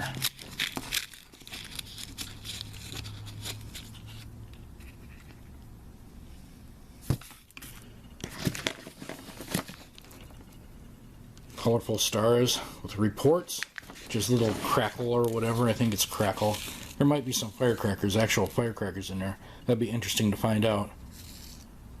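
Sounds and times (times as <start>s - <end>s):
paper packaging crinkling: 0.0s - 5.6s, 13.5s - 18.9s.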